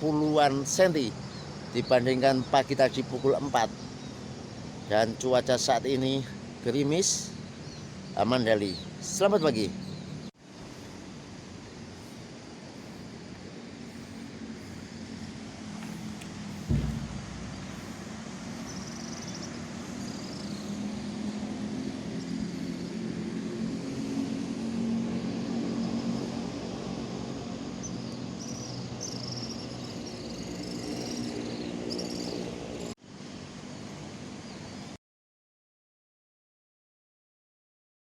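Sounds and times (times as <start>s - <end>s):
low engine hum: 15.4s - 19.3s
sharp thump: 16.6s - 19.0s.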